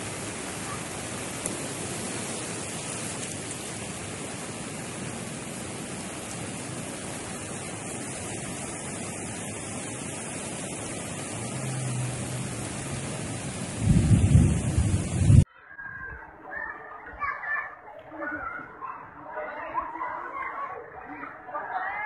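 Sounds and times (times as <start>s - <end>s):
water rushing: 0.0s - 15.5s.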